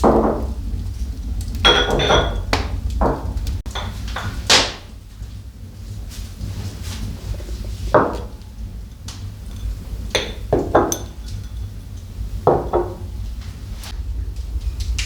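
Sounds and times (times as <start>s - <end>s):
steady low hum: 0.0s - 15.0s
hard objects knocking and clinking: 1.6s - 4.9s, 7.3s - 13.2s.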